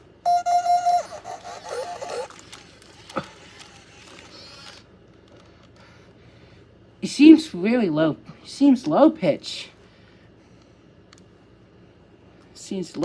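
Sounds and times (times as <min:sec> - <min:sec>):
electronic jingle of bark-like yips: 0:00.3 - 0:02.3
electronic tone: 0:00.3 - 0:02.3
toy click: 0:00.3 - 0:04.8.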